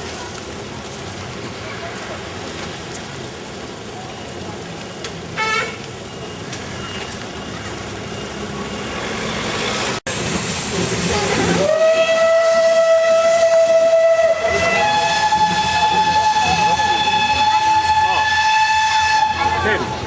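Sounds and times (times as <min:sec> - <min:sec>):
steam locomotive rushing noise: 0:00.0 - 0:20.0
steam hissing: 0:09.1 - 0:19.9
steam whistle blowing: 0:11.5 - 0:19.7.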